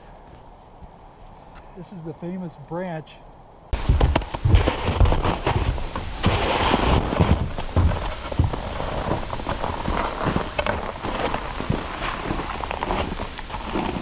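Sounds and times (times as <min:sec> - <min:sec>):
low thumps on microphone: 0:03.8 - 0:13.3
footsteps crunching through snow: 0:03.8 - 0:14.0.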